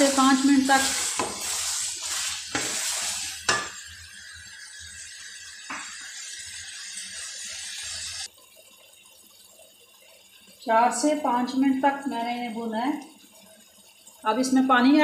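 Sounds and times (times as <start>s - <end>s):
vegetables sizzling in oil: 0.0s - 8.3s.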